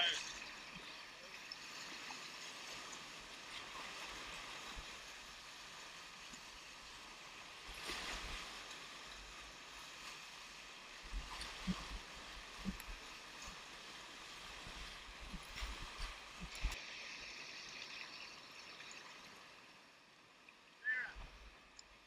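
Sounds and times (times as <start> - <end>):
water splash: 7.5 - 10.3, 11.0 - 19.6.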